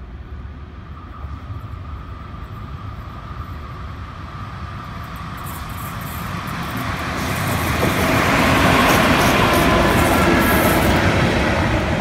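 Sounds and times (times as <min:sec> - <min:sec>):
rail clatter: 0:05.5 - 0:11.3.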